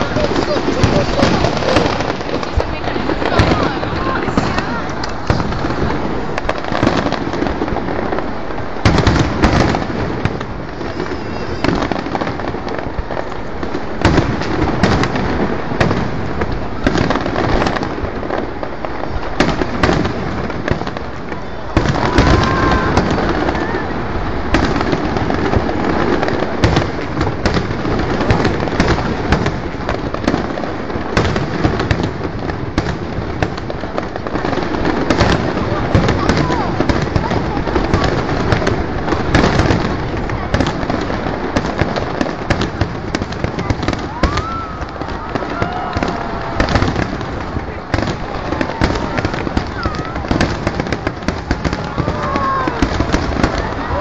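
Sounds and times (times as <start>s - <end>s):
firework whistling glide: 0.0s - 6.4s, 10.6s - 12.5s
fireworks bangs and crackling: 0.0s - 54.0s.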